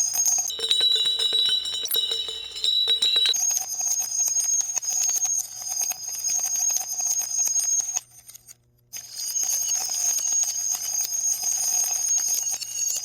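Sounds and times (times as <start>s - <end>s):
high ringing tone: 0.4s - 3.4s
marbles clattering through marble run: 0.5s - 3.4s.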